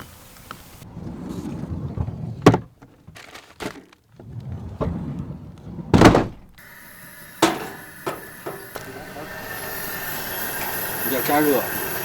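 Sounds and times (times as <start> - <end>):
knocks and thuds of handling: 5.9 - 6.6.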